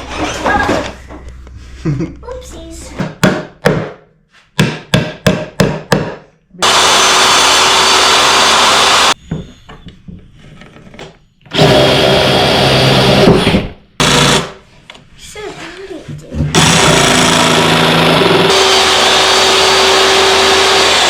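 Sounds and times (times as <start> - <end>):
sharp knocks on wood: 3.0 - 4.0, 4.6 - 6.2
power tool running: 6.6 - 9.2, 11.5 - 14.6, 16.5 - 21.0.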